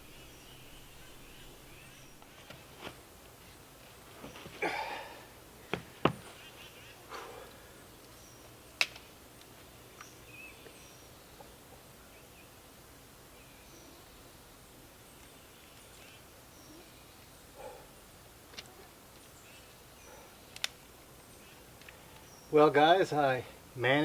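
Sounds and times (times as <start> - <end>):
faint bird chirps: 0.0 - 2.3, 15.1 - 18.0.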